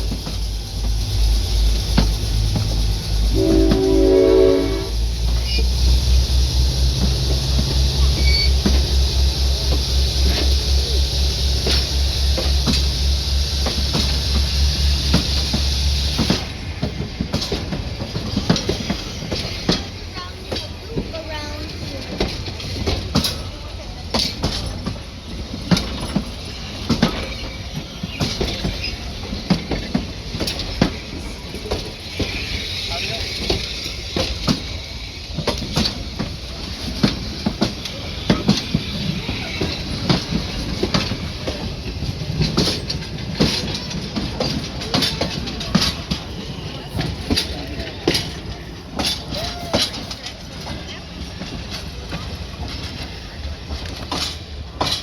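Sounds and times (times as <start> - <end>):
locomotive engine throbbing: 0.0 - 23.2
train rumbling: 0.0 - 55.0
locomotive horn blast: 3.2 - 5.1.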